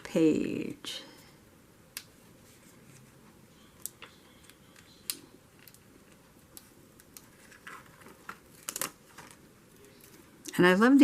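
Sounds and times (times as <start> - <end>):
paper rustling: 5.6 - 10.3.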